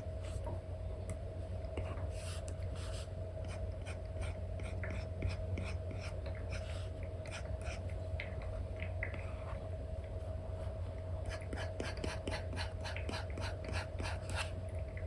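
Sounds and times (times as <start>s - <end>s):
steady low hum: 0.0s - 15.0s
stylus tapping and scratching: 1.8s - 6.7s, 11.3s - 14.5s.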